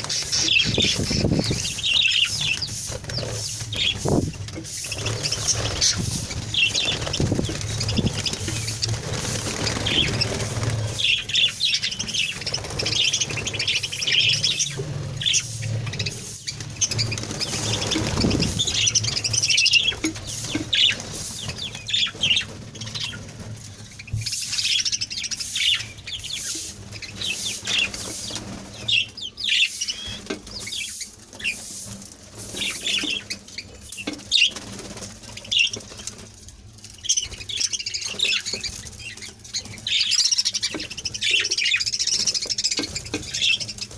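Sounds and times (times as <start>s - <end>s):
wing flutters: 0.0s - 43.9s
budgerigars chirping: 0.1s - 23.3s, 24.2s - 31.8s, 32.5s - 34.6s, 37.0s - 43.9s.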